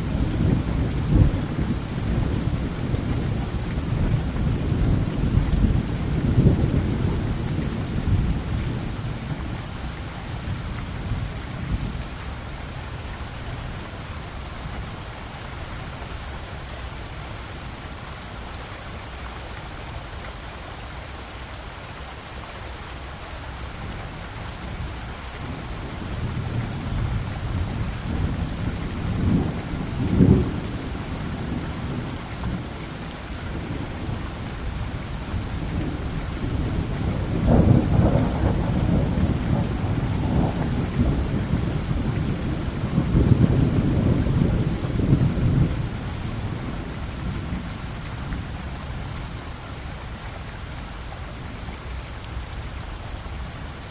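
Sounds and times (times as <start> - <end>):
rolling thunder: 0.0 - 9.7, 25.4 - 49.1
steady rain falling: 0.0 - 53.9.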